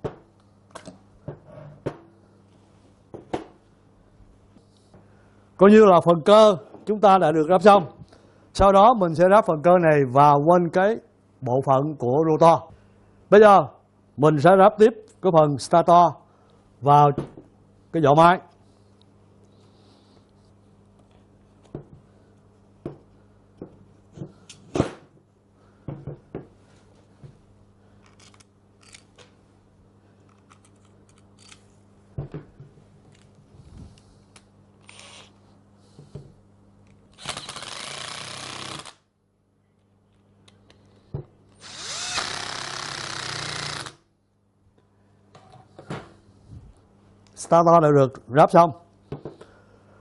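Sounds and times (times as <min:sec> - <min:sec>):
small electric power tool spinning: 0:34.8 - 0:35.3, 0:37.2 - 0:39.0, 0:41.6 - 0:44.0.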